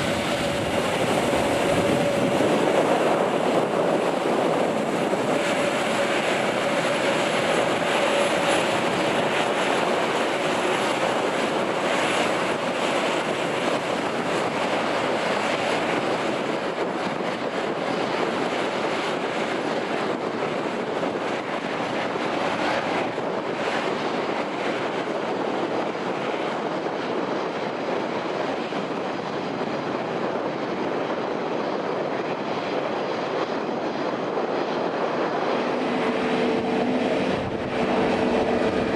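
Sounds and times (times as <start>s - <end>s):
jet engines rushing: 0.0s - 38.9s.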